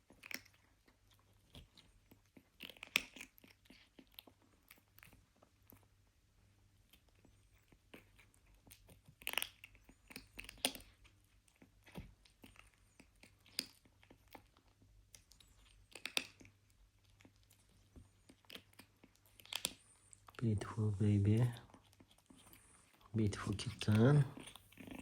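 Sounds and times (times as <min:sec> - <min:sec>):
kitten crunching food: 0:00.0 - 0:25.0.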